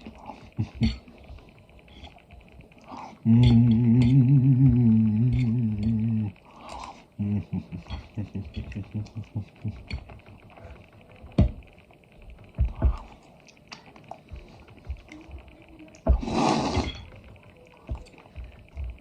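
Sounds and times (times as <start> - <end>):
chewing thuds: 12.3 - 17.1.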